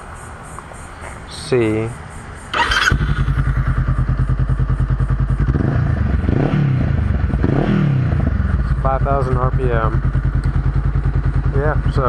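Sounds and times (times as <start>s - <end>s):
motorcycle engine revving: 2.4s - 12.0s.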